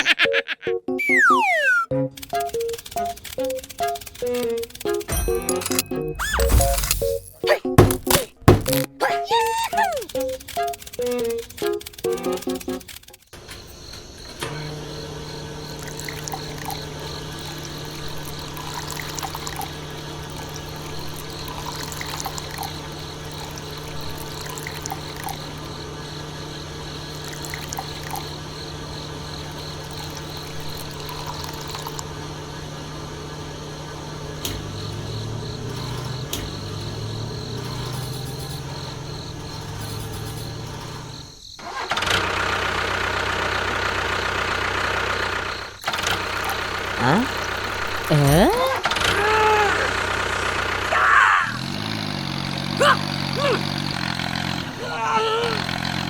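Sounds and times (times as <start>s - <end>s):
small electric motor humming: 13.4s - 41.3s
rough whirring: 31.8s - 43.0s, 48.7s - 56.0s.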